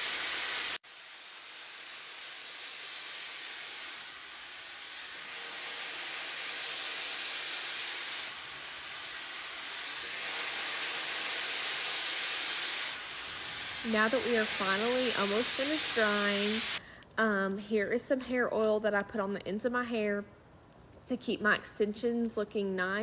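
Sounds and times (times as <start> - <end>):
hair dryer blowing: 0.0 - 16.8.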